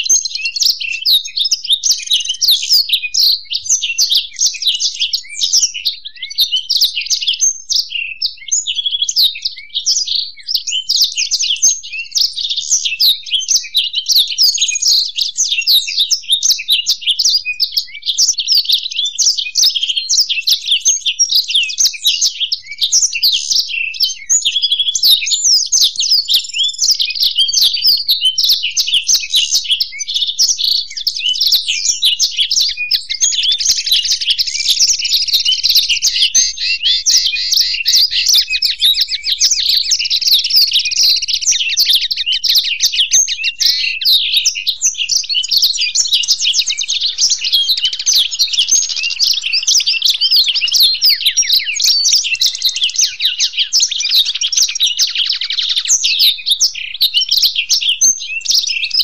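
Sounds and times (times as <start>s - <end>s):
songbirds twittering and trilling: 0.0s - 59.0s.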